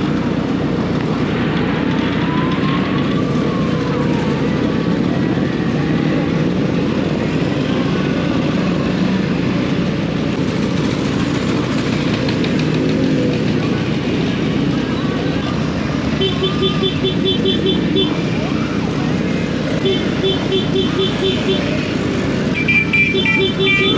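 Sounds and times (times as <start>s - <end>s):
motorcycle engine: 0.0s - 23.9s
road noise: 0.0s - 23.9s
faint siren wailing: 1.3s - 8.8s.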